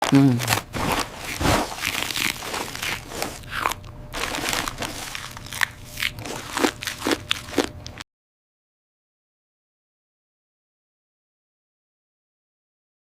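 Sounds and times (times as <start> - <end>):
irregular crunching: 0.0 - 8.0.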